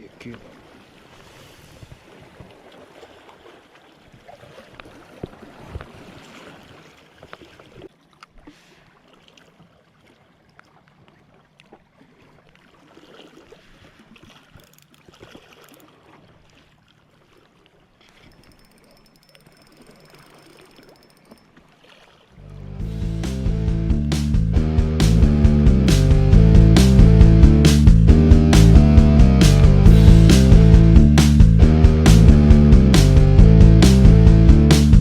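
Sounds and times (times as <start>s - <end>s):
water sloshing and lapping: 0.0s - 22.8s.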